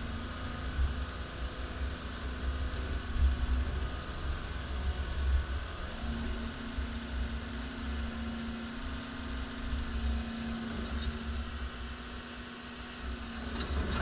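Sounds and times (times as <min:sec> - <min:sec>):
steady hum: 0:00.0 - 0:14.0
excavator diesel engine rumble: 0:13.0 - 0:14.0.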